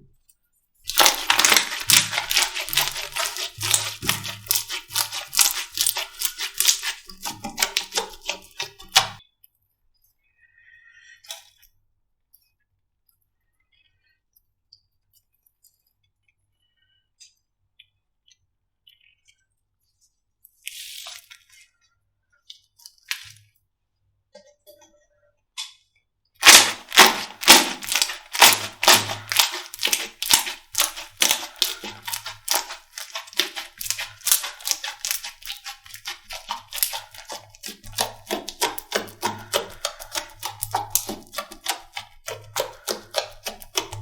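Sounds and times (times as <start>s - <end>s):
slime crackling and popping: 0.9s - 9.2s, 26.4s - 44.0s.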